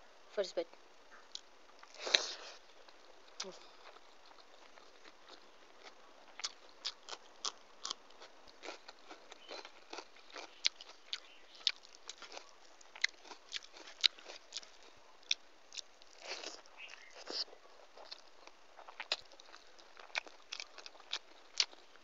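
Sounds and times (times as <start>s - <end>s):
chewing rice: 1.2s - 22.0s.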